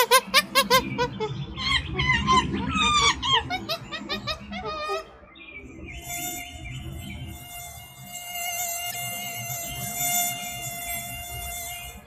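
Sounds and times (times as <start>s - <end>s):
monkey chattering: 0.0s - 5.1s
mosquito whining: 6.0s - 12.0s.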